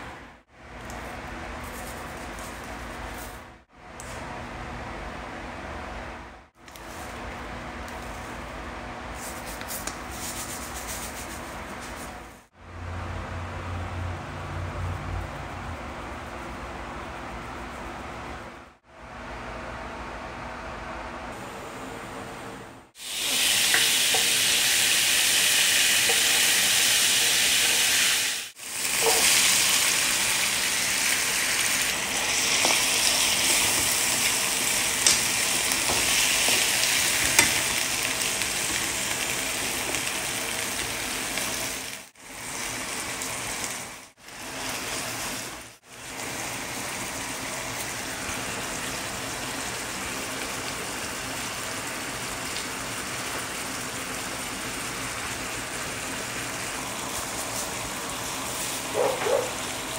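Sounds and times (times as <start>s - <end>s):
beans sizzling in frying pan: 23.0s - 59.9s.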